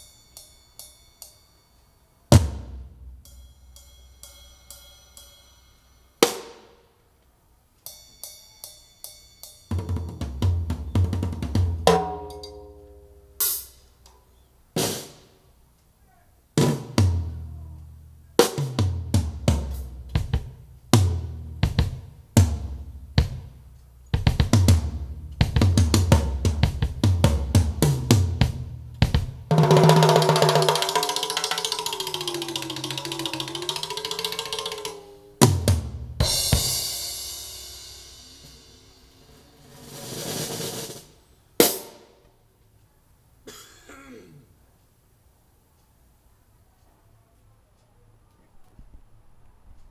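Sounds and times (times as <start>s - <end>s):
drum music through woofer: 9.7s - 12.4s, 18.5s - 39.0s.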